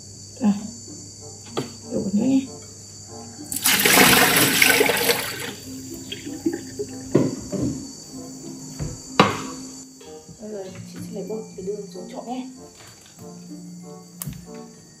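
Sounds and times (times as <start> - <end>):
tap water splashing into basin: 3.5 - 7.3.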